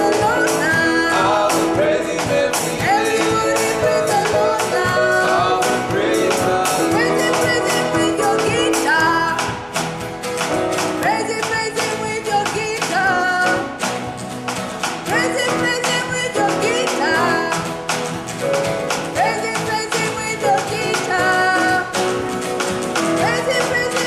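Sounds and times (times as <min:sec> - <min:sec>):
people singing: 0:00.0 - 0:09.6
worship band playing: 0:00.0 - 0:20.0.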